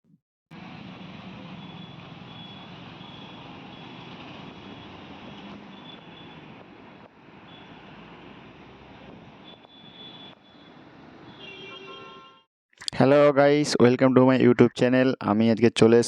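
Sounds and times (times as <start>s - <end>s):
traffic noise: 0.5s - 13.0s.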